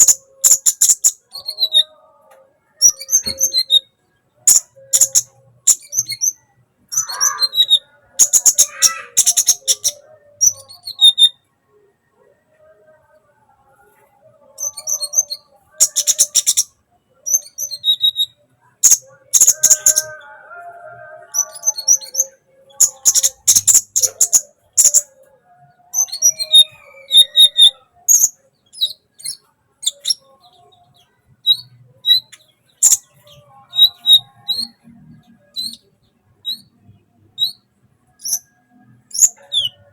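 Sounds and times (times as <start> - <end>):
bird chattering song: 0.0 - 2.0, 2.8 - 11.4, 14.5 - 16.7, 17.3 - 20.4, 21.2 - 25.2, 25.9 - 30.8, 31.4 - 36.8, 39.1 - 39.9.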